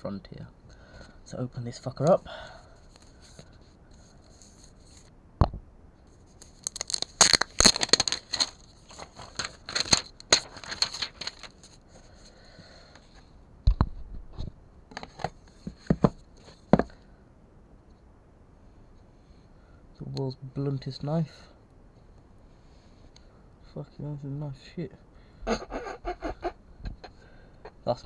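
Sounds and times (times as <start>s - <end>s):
packaging tearing and crinkling: 6.4s - 11.6s.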